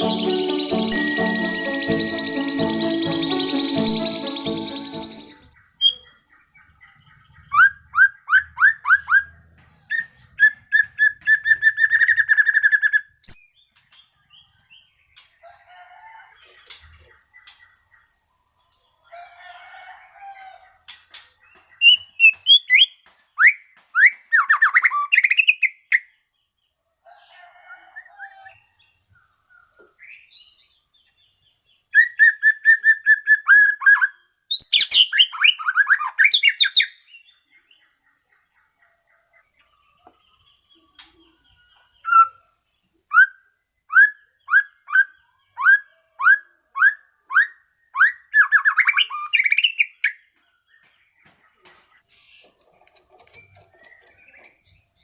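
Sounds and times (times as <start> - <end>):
bird singing whistles and trills: 2.0 - 6.2, 7.4 - 13.6, 21.8 - 26.1, 31.9 - 37.4, 40.7 - 42.5, 43.1 - 50.2.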